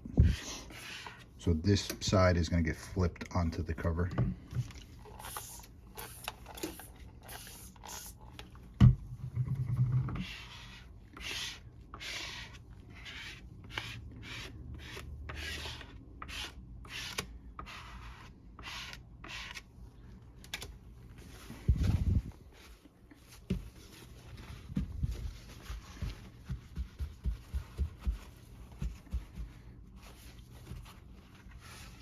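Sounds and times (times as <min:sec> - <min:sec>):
hands rubbing damp paper: 0:21.2 - 0:32.0.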